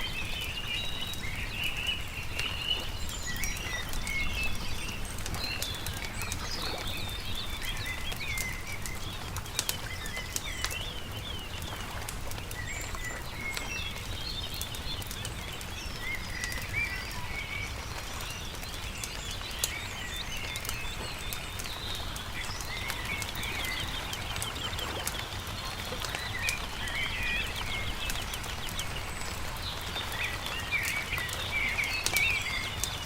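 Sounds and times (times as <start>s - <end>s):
campfire crackling and popping: 0.0s - 33.0s
small birds chirping: 0.0s - 33.0s.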